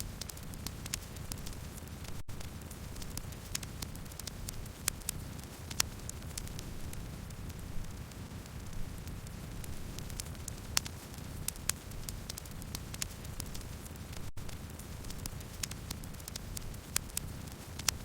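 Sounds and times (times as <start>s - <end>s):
campfire crackling and popping: 0.0s - 18.0s
low rumble of flames: 0.0s - 18.0s.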